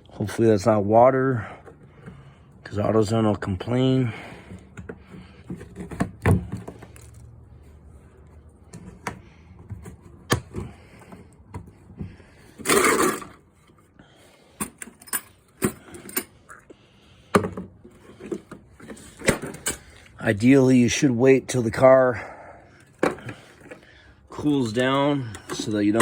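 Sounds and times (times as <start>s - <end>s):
tools clinking and knocking: 12.6s - 13.4s, 14.6s - 16.4s, 17.3s - 20.0s, 24.4s - 26.0s.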